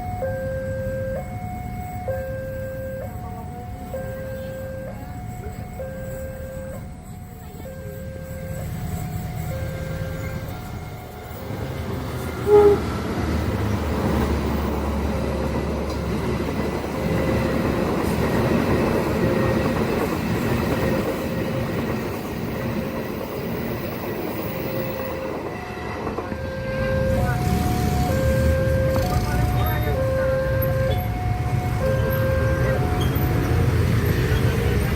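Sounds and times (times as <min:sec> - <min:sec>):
train wheels rumbling on rails: 0:03.0 - 0:34.9
brief loud tone: 0:12.4 - 0:12.9.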